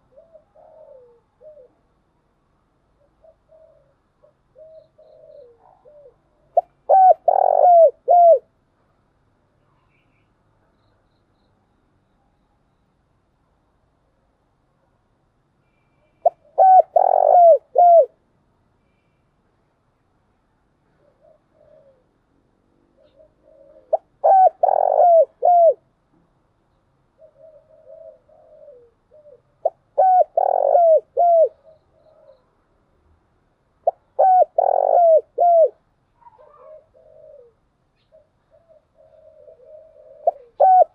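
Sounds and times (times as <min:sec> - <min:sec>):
dove cooing: 0:00.0 - 0:01.9, 0:03.0 - 0:08.5, 0:16.2 - 0:18.2, 0:21.0 - 0:22.2, 0:22.9 - 0:25.9, 0:27.2 - 0:32.5, 0:33.8 - 0:40.9.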